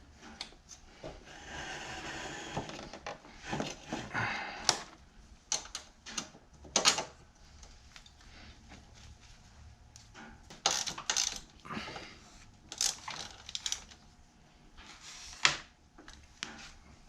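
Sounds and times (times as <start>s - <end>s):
rubbing and scraping: 0.9s - 4.2s.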